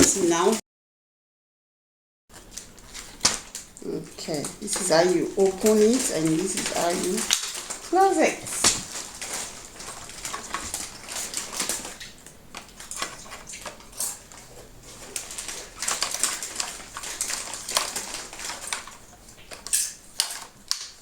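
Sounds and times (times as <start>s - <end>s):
plastic parts clicking and snapping: 5.6s - 7.9s, 8.6s - 21.0s.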